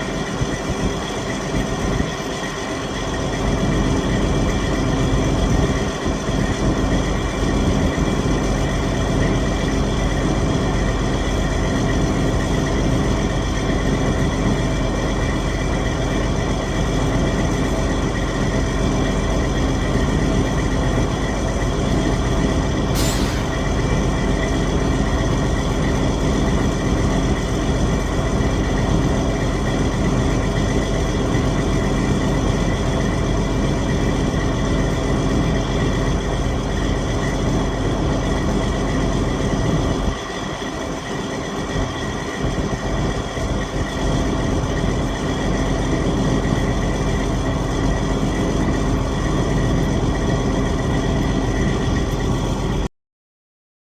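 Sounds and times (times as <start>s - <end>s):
diesel truck engine running: 0.0s - 52.8s
short sharp sound: 23.0s - 24.4s.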